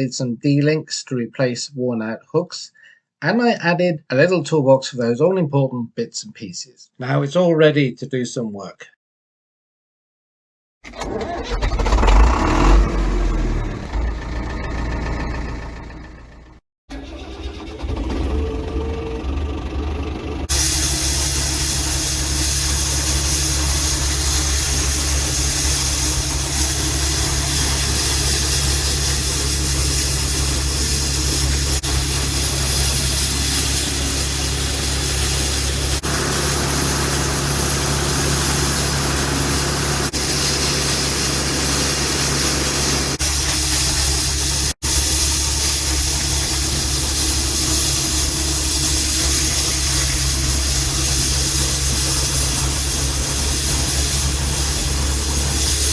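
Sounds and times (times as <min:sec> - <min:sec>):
tractor diesel engine running: 0:11.0 - 0:55.9
constant hiss: 0:20.5 - 0:39.0.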